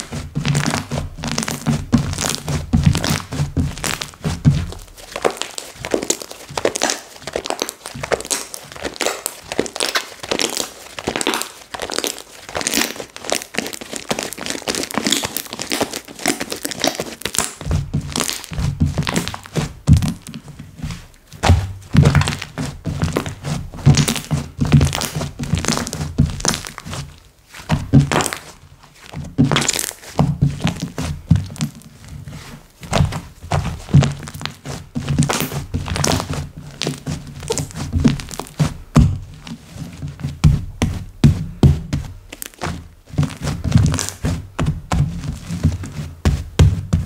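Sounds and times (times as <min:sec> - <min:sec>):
deep slime squishing: 0:00.0 - 0:47.0.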